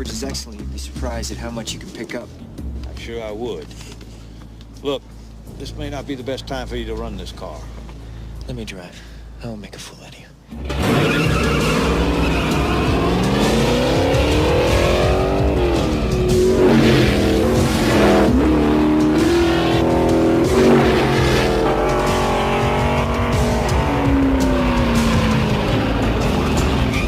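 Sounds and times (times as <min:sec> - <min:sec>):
race car engine at speed: 0:10.6 - 0:27.0.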